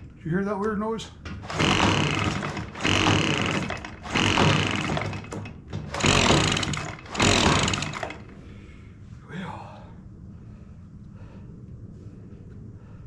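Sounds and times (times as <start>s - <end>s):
recoil starter pulls on small engine: 1.4s - 8.4s.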